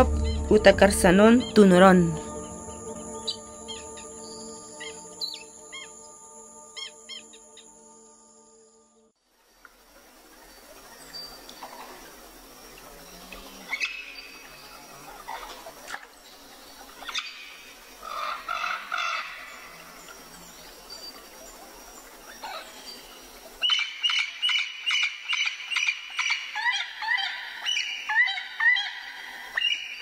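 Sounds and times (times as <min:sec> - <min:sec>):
bird calls: 0:02.4 - 0:06.1.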